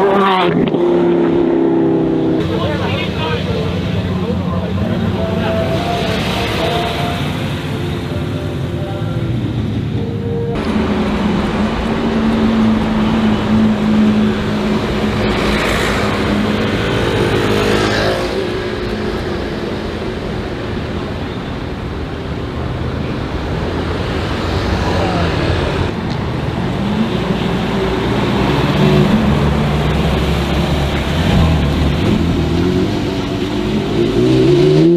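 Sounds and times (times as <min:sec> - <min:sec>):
sports car engine running: 0:00.0 - 0:17.5
road noise: 0:00.0 - 0:34.9.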